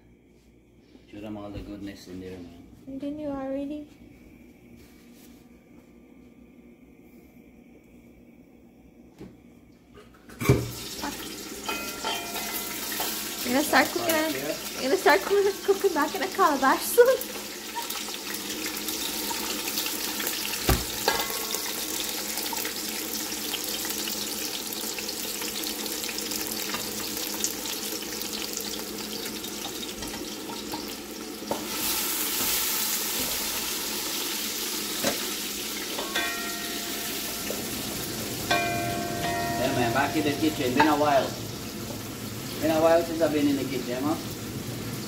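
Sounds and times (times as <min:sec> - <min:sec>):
food sizzling in hot oil: 0:10.5 - 0:45.0
knock: 0:20.7 - 0:21.0.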